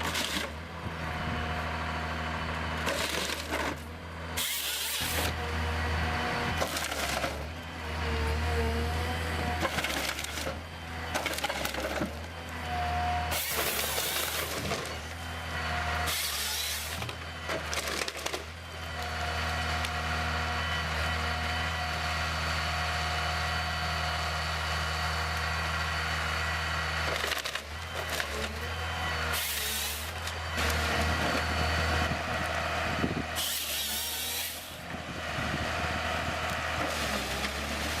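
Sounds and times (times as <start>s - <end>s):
heavy machine running: 0.0s - 38.0s.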